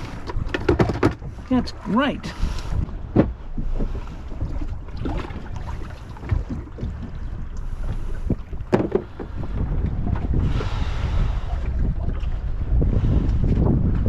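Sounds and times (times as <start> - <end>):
water slapping plastic boat: 0.0 - 14.0
wind rumbling on microphone: 0.0 - 14.0
short knocks: 8.3 - 9.4.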